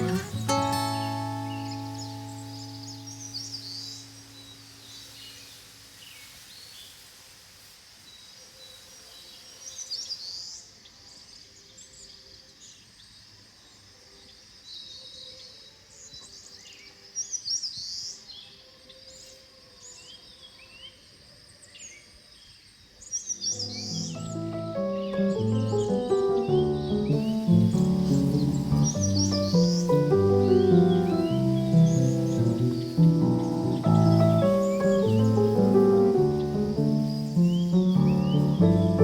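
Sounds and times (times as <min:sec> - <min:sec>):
birds chirping and trilling: 0:00.0 - 0:05.6, 0:23.0 - 0:39.0.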